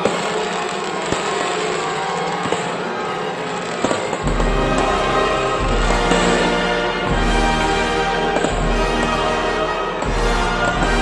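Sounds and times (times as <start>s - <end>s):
orchestral music: 4.0s - 11.0s.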